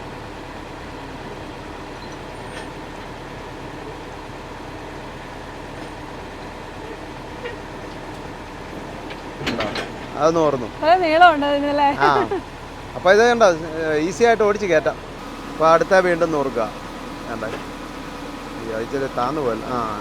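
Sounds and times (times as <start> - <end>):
lorry engine and hydraulics running: 13.2 - 20.0
faint steady whine: 15.2 - 20.0.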